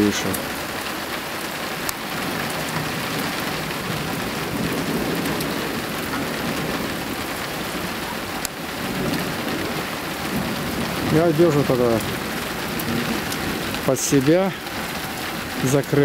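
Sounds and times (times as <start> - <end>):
heavy rain hissing: 0.0 - 16.0.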